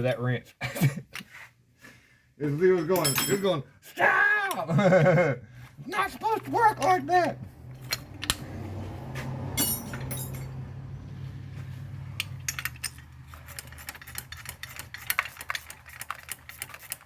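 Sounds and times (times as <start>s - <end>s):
metal tool clinks: 2.8s - 3.6s, 9.6s - 10.6s.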